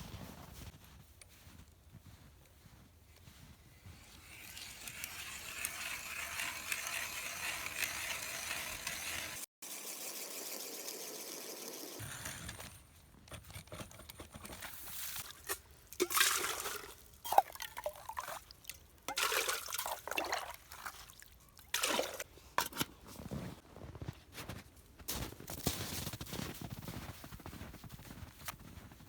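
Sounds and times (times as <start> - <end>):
water splashing into a pot: 15.4 - 22.2.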